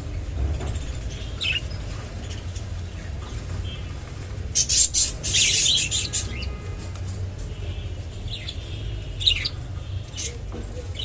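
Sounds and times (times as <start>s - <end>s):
budgerigars chirping: 0.8s - 6.6s, 8.3s - 11.0s.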